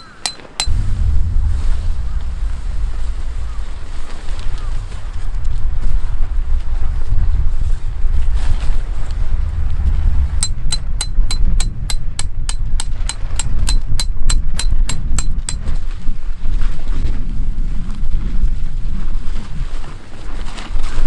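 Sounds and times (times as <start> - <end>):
sharp high clicks: 0.0 - 0.7
wind buffeting microphone: 0.0 - 21.0.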